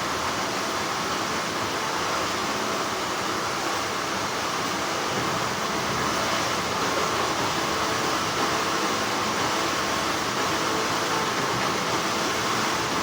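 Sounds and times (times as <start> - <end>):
factory machinery hum: 0.0 - 13.0.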